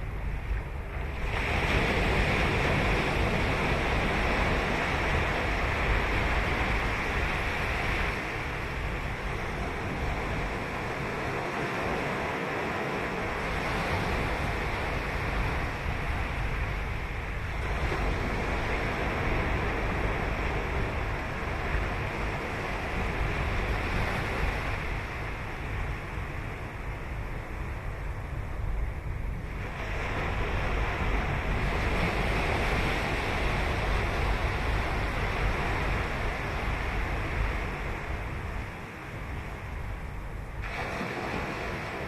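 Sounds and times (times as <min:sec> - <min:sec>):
wind rumble on microphone: 0:00.0 - 0:42.0
ocean surf breaking: 0:01.2 - 0:28.0, 0:29.5 - 0:42.0.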